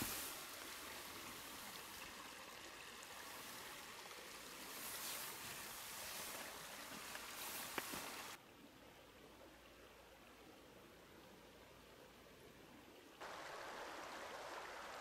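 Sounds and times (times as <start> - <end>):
river rushing over stones: 0.0 - 8.4, 13.2 - 15.0.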